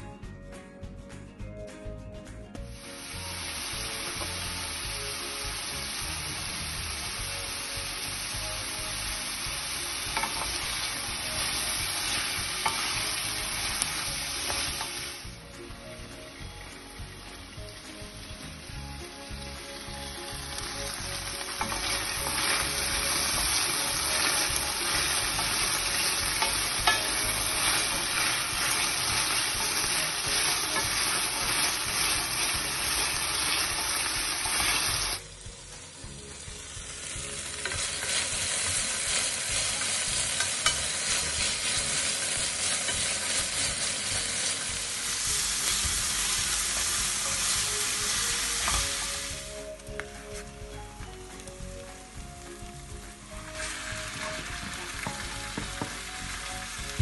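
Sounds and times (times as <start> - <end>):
peppers sizzling in a pan: 2.6 - 57.0
spatula stirring: 10.1 - 15.0, 21.4 - 35.2.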